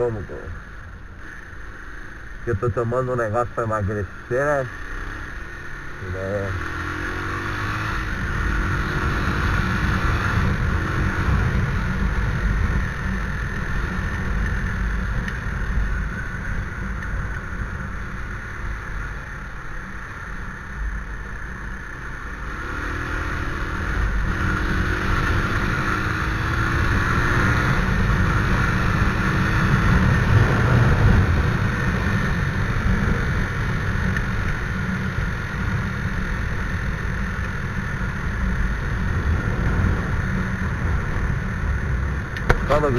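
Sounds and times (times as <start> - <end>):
motorcycle engine rumble: 0.0 - 42.9
wind noise: 22.7 - 36.7, 37.6 - 42.9.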